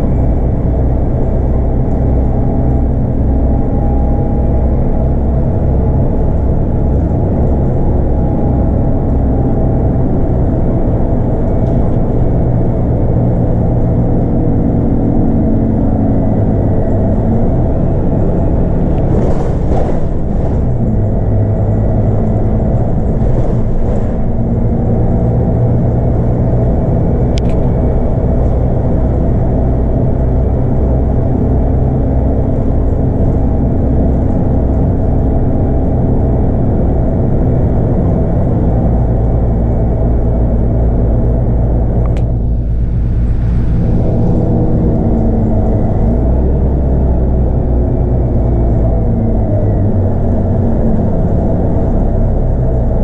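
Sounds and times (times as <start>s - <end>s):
bus diesel engine running: 0.0s - 53.0s
click: 27.4s - 27.7s, 42.0s - 42.3s.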